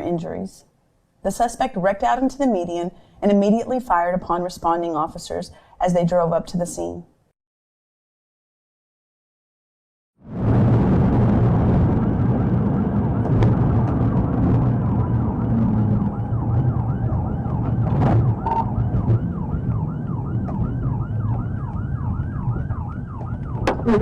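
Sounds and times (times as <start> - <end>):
car engine and road noise: 11.0 - 24.0
police siren yelping: 12.3 - 24.0.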